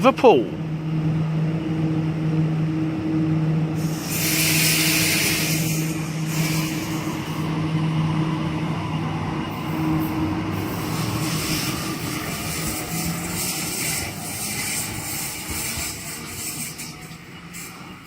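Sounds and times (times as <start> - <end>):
electric train hum: 0.0 - 18.0
loud hiss of air: 3.8 - 7.6, 9.6 - 18.0.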